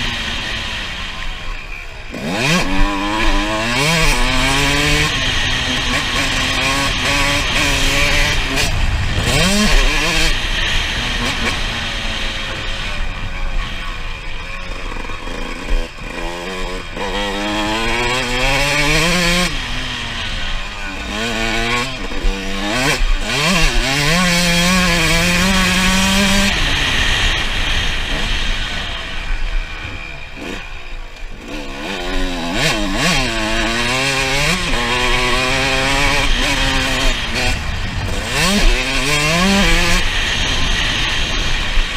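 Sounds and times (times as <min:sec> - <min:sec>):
motorbike engine revving hard: 0:00.0 - 0:41.9.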